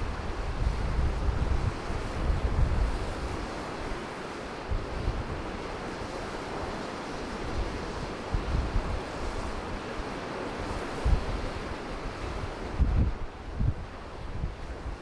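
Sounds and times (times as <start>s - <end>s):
wind buffeting microphone: 0.0s - 3.5s, 7.4s - 9.5s, 10.7s - 15.0s
rushing water: 0.0s - 15.0s.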